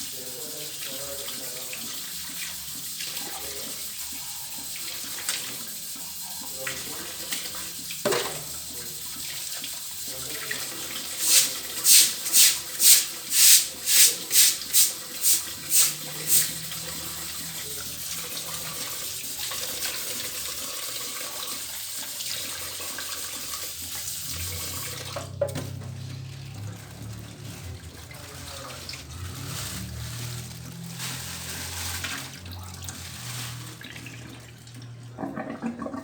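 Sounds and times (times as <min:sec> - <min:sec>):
running water hiss: 0:10.0 - 0:19.2
brush scrubbing tiles: 0:11.1 - 0:16.6.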